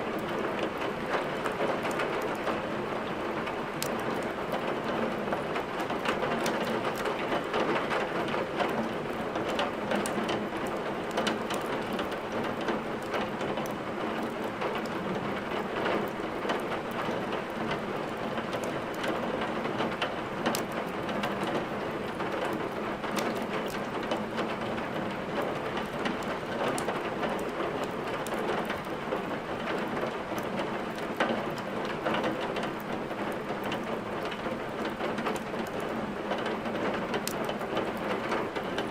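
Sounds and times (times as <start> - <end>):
heavy rain: 0.0 - 38.9
wood fire crackling: 22.6 - 24.2, 32.6 - 35.8, 36.4 - 38.9.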